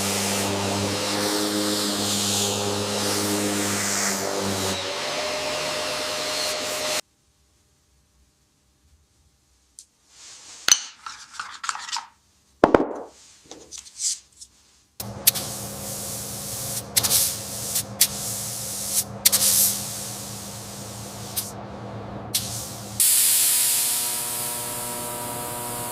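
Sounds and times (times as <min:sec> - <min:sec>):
paint spray gun hissing: 0:00.0 - 0:04.7, 0:15.2 - 0:21.5, 0:22.4 - 0:25.9
rubbing and scraping handling noises: 0:10.0 - 0:12.2, 0:12.8 - 0:15.0
knock: 0:12.6 - 0:13.2.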